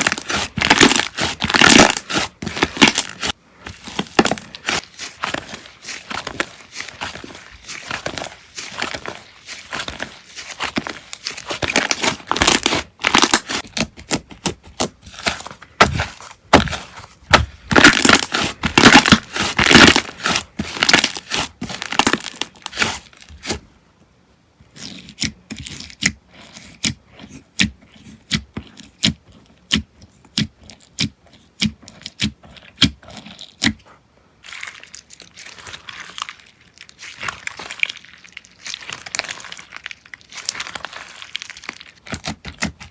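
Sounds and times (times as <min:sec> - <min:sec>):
slime crackling and popping: 0:00.0 - 0:23.1, 0:34.5 - 0:42.9.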